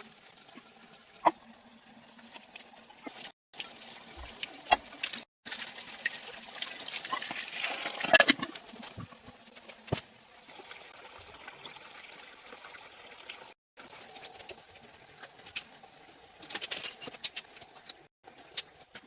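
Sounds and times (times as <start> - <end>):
water splashing and pouring: 2.2 - 9.0.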